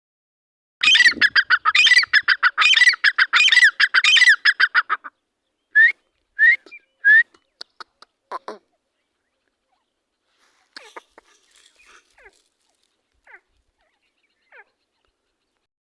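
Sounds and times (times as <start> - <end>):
francolin calling: 0.8 - 8.5.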